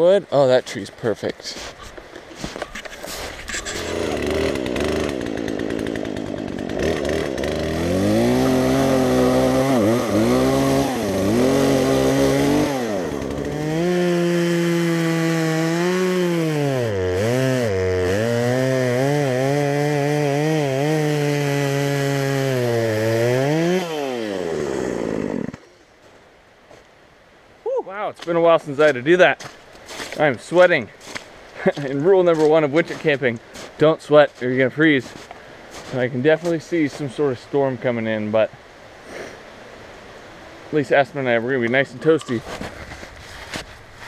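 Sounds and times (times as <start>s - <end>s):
chainsaw cutting tree: 2.8s - 25.7s.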